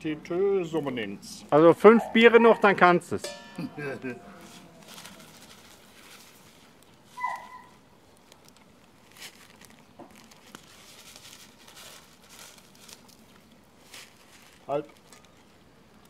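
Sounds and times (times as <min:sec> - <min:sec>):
plastic packet crinkling: 0:04.4 - 0:16.0.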